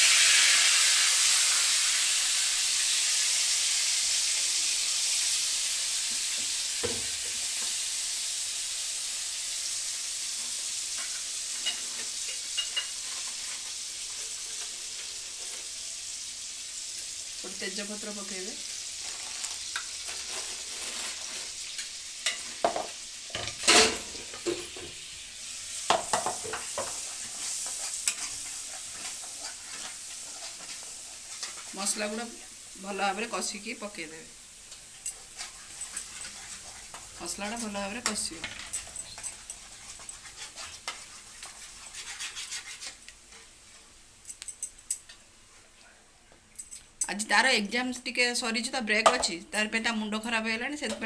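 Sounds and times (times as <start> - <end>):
food sizzling in hot oil: 0.0 - 51.0
spoon scraping a pan: 10.2 - 15.9, 18.6 - 33.5, 34.6 - 44.0.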